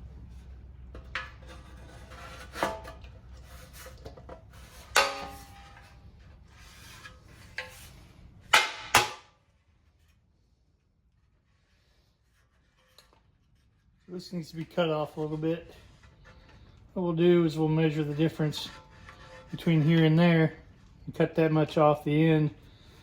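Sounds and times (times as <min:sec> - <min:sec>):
low steady hum: 0:00.0 - 0:23.0
metal clang: 0:04.8 - 0:06.0.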